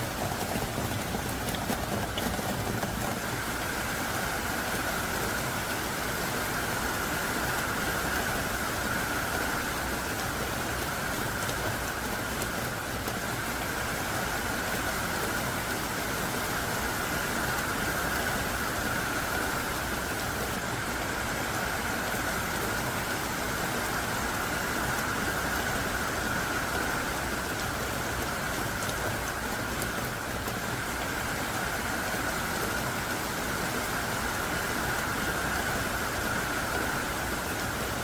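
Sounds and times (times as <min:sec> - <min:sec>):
heavy rain pouring: 0:00.0 - 0:38.0.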